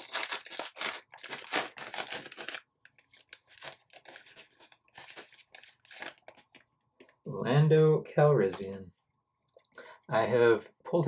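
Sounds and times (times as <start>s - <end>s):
wrapper being torn open: 0.0s - 6.4s
wrapper crinkling: 0.0s - 6.7s.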